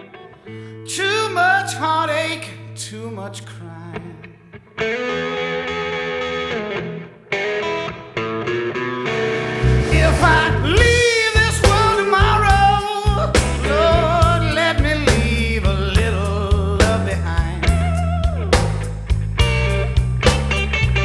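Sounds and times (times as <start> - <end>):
bass and drum beat: 9.3 - 21.0.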